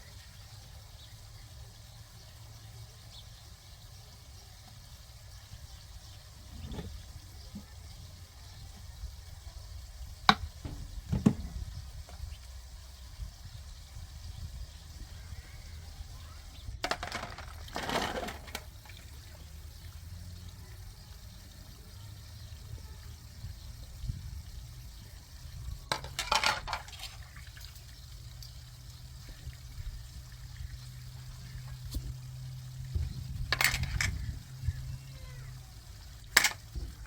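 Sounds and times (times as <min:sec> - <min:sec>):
water splashing: 0:15.1 - 0:24.0, 0:24.6 - 0:37.0.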